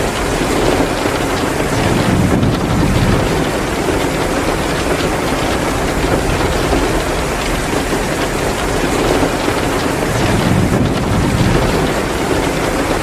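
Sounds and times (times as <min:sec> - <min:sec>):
heavy rain pouring: 0:00.0 - 0:13.0
wood fire crackling: 0:00.0 - 0:13.0.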